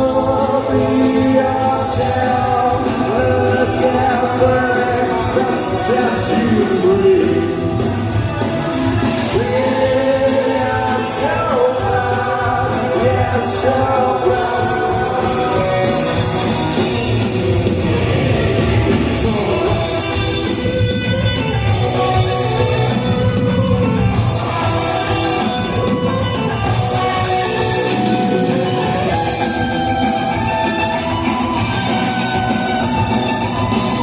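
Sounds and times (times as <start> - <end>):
person singing: 0.0 - 17.2, 18.4 - 21.2
drum kit: 0.0 - 34.0
guitar: 0.0 - 34.0.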